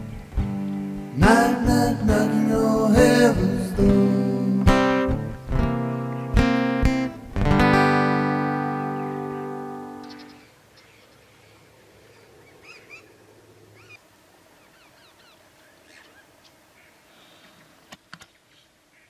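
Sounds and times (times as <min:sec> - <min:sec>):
faint outdoor ambience: 0:00.0 - 0:19.0
bird chirps: 0:08.7 - 0:14.0, 0:14.6 - 0:19.0.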